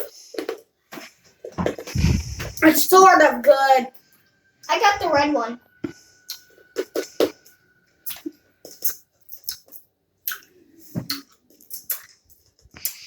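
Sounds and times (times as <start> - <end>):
mouth smacks and clicks eating: 5.8 - 13.0.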